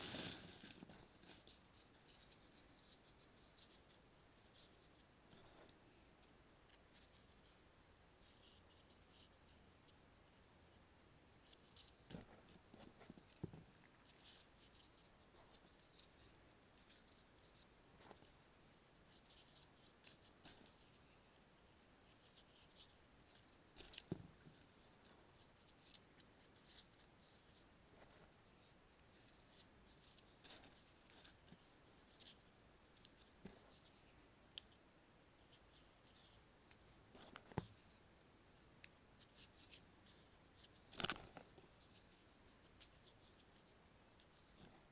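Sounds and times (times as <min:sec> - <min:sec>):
paper rustling and crinkling: 0:00.0 - 0:06.1, 0:39.2 - 0:43.6.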